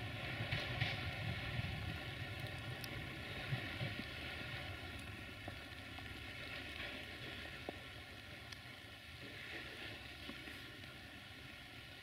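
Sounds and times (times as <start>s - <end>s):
wheels clicking on track: 0.0s - 5.7s.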